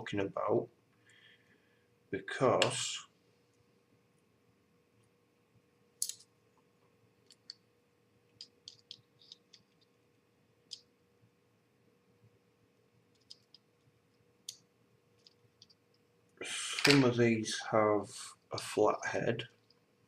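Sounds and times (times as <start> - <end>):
faint steady hum: 0.0 - 20.0
small screws clicking: 8.4 - 9.9.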